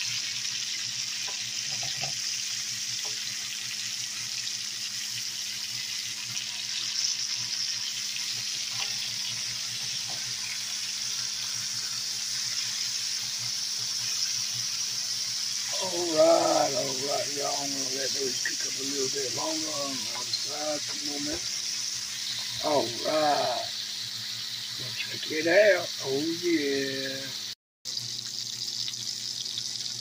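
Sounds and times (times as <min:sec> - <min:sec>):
burger patties sizzling in skillet: 0:00.0 - 0:30.0.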